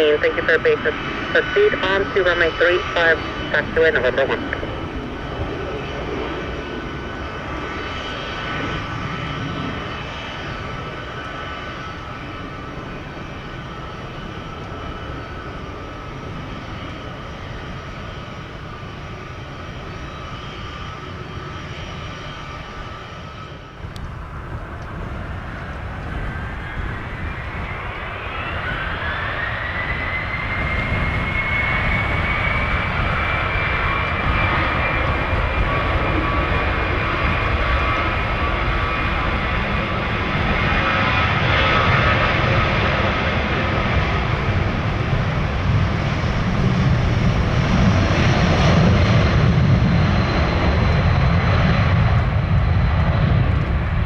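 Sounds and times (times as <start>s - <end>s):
jet engines whining: 0.0s - 54.0s
low rumble: 23.8s - 41.2s.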